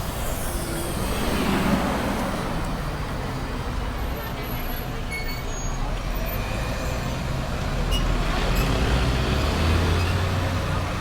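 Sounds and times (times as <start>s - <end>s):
heavy vehicle engine passing: 0.0s - 4.5s
road traffic: 0.0s - 11.0s.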